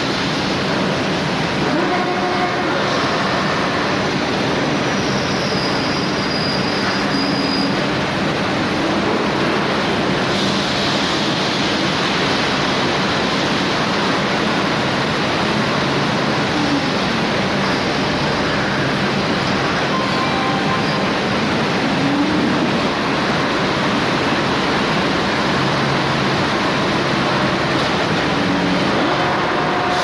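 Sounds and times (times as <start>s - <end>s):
thin high whine: 19.6s - 21.5s.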